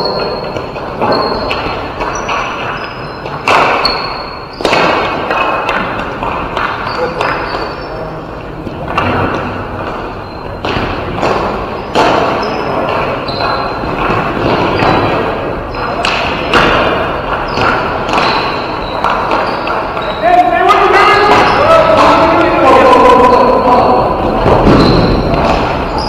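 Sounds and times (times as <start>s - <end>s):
shoe squeaks: 0.0s - 5.2s, 5.8s - 26.0s
ball and sticks thudding: 0.0s - 26.0s
players calling out: 6.8s - 26.0s.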